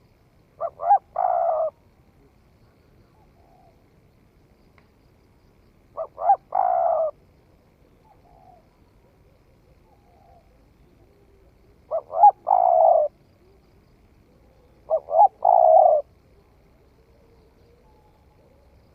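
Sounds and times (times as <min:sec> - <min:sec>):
dove cooing: 0:00.6 - 0:01.8, 0:03.1 - 0:03.8, 0:06.0 - 0:07.2, 0:07.8 - 0:13.6, 0:14.2 - 0:18.8.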